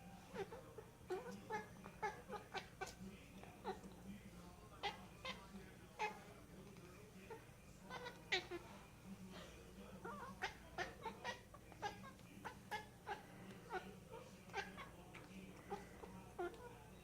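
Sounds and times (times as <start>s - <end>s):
cat calling: 0.3s - 3.0s, 7.3s - 8.6s, 10.0s - 13.9s, 14.5s - 15.0s.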